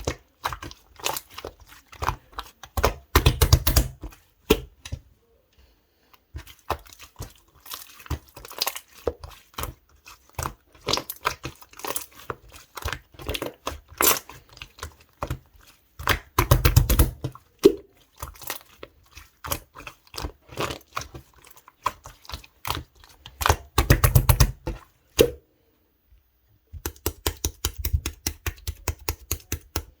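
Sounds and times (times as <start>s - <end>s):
slime squishing with clicks and pops: 0.0s - 5.0s, 16.0s - 18.6s, 21.8s - 25.4s, 26.7s - 30.0s.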